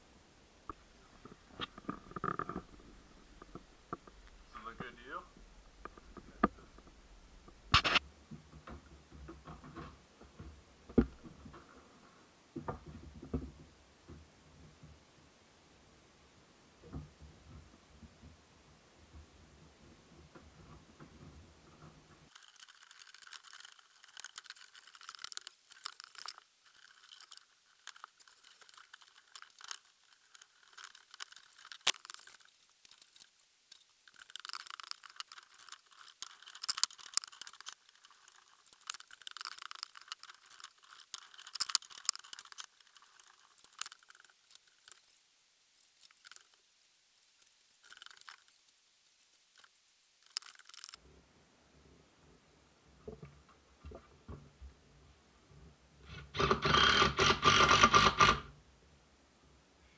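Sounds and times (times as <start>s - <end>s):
crunching and clicking: 20.3s - 45.2s, 45.8s - 46.6s, 47.4s - 48.8s, 49.5s - 51.0s.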